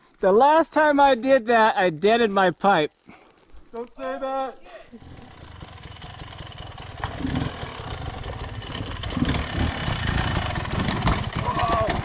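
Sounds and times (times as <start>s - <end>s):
motorcycle engine at low revs: 5.0s - 12.0s.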